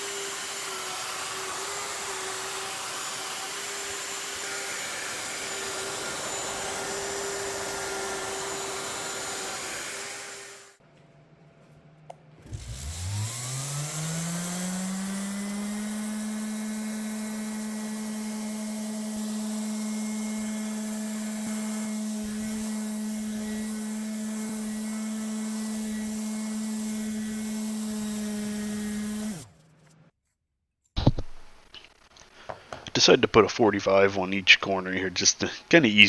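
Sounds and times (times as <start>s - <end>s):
electric power tool motor whining: 0.0s - 10.8s, 12.4s - 29.7s.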